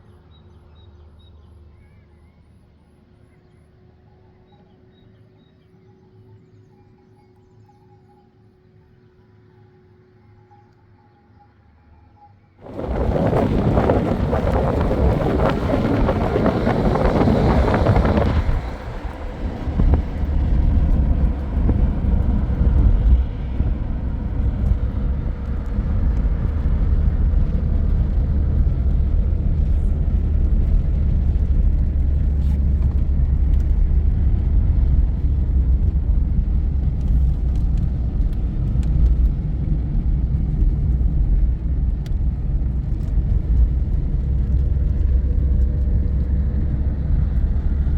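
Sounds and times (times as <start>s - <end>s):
loud rushing noise: 12.6s - 36.9s
vehicle engine and road rumble: 12.6s - 47.9s.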